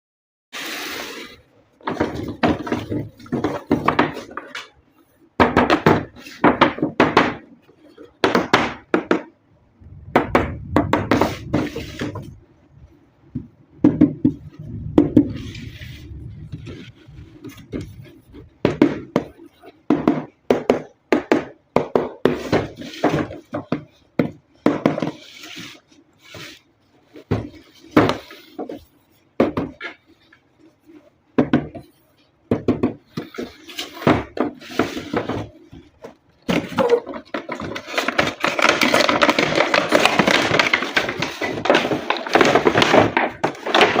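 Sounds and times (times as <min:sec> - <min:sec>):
low rumble: 0:09.7 - 0:13.8, 0:14.4 - 0:18.7
packaging being handled: 0:33.2 - 0:44.0.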